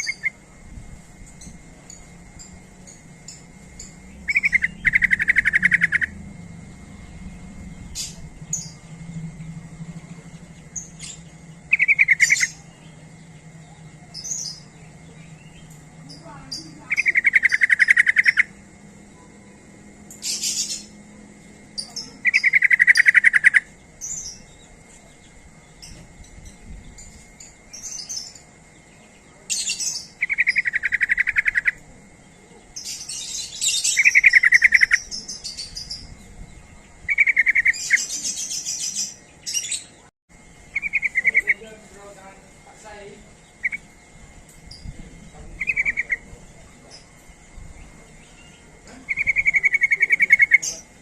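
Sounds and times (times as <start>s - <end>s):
high-pitched bird chirps: 0.0s - 0.4s, 1.4s - 6.2s, 7.0s - 18.6s, 21.8s - 24.7s, 29.5s - 31.8s, 32.8s - 36.4s, 37.0s - 40.0s, 40.7s - 41.7s, 43.4s - 44.0s, 45.6s - 47.1s, 48.2s - 50.9s
bulbul bubbling song: 3.8s - 7.1s.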